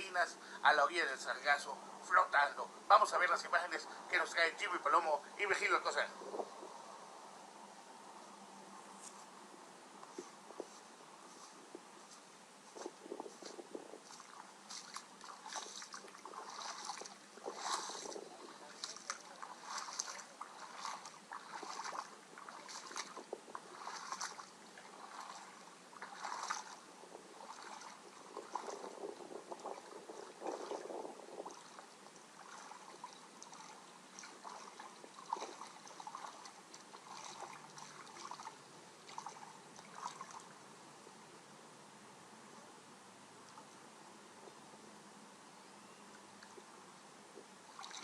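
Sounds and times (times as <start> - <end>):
shallow water lapping and splashing: 12.7 - 40.6, 47.4 - 48.0.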